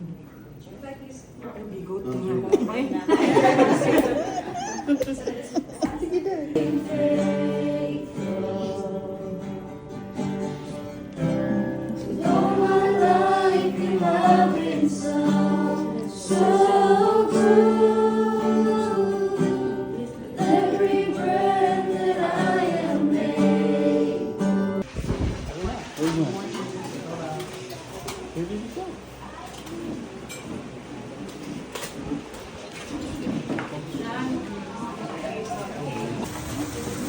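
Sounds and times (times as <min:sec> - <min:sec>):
group singing worship song: 0:03.1 - 0:04.5, 0:05.8 - 0:25.3.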